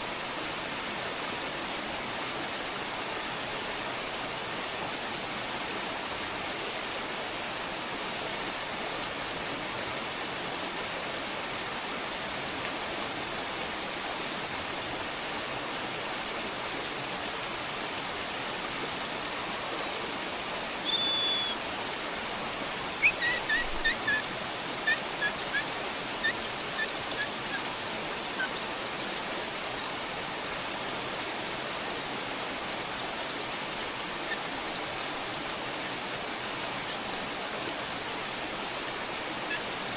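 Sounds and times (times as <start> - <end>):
bird high whistle: 20.8 - 21.6, 23.0 - 24.2
short bird chirps: 20.8 - 21.6.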